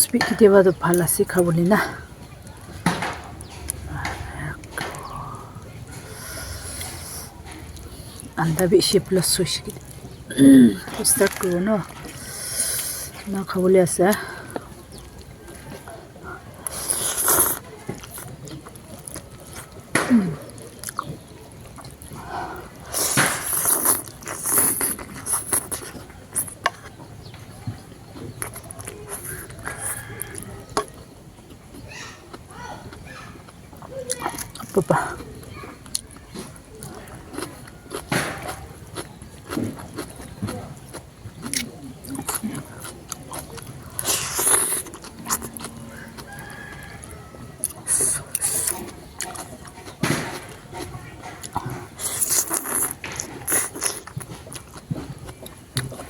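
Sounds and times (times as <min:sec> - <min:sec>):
chewing: 0:00.2 - 0:56.0
person eating noodles: 0:03.9 - 0:08.4, 0:10.2 - 0:13.2, 0:16.2 - 0:26.9, 0:35.9 - 0:56.0
slurping noodles: 0:05.0 - 0:08.3, 0:12.1 - 0:13.2, 0:16.6 - 0:18.3, 0:43.9 - 0:45.7, 0:47.6 - 0:49.5, 0:50.9 - 0:54.1
rooster crowing: 0:29.6 - 0:31.0, 0:45.8 - 0:47.8.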